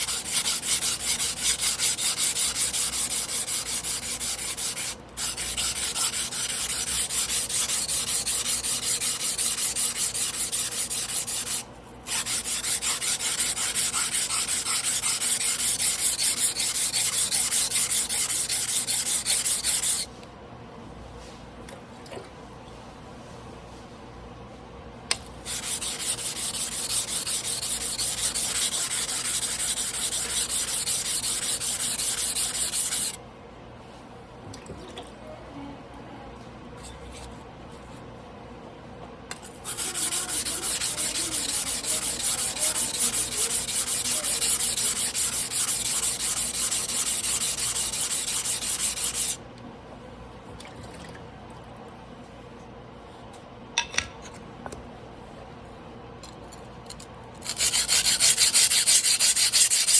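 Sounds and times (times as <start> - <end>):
blade sharpening on whetstone: 0.0 - 20.1, 25.5 - 33.2, 39.4 - 49.4, 57.4 - 59.9.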